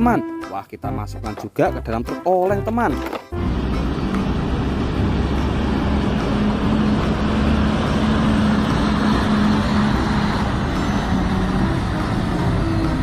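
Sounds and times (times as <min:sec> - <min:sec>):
vehicle engine running: 0:03.4 - 0:13.0.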